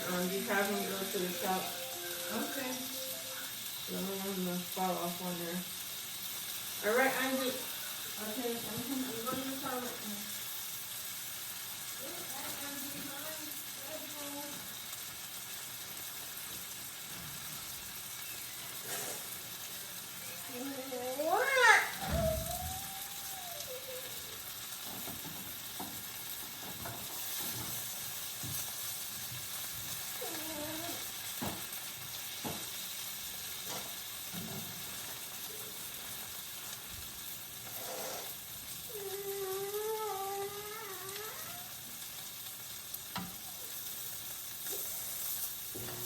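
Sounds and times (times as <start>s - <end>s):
steak sizzling in a pan: 0.0s - 46.0s
wavering voice-like sounds: 21.4s - 24.4s.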